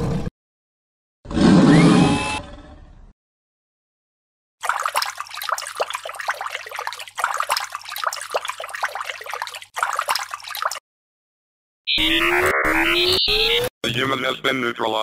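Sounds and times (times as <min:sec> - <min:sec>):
bubbling trickling water: 0:04.6 - 0:10.8.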